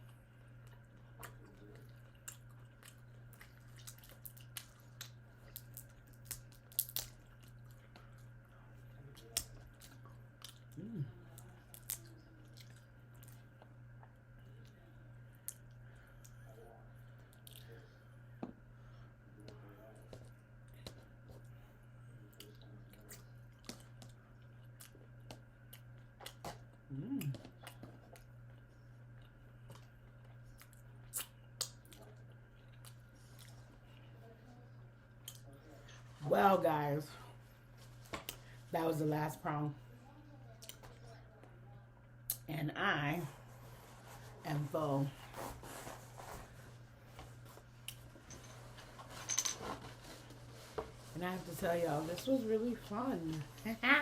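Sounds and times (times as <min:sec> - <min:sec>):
chewing with wet mouth clicks: 0:00.0 - 0:08.3, 0:09.0 - 0:14.8, 0:17.1 - 0:17.7, 0:22.3 - 0:34.1, 0:35.2 - 0:35.5, 0:40.6 - 0:41.0
steady low hum: 0:00.0 - 0:54.0
person murmuring: 0:10.8 - 0:11.2, 0:26.9 - 0:27.4.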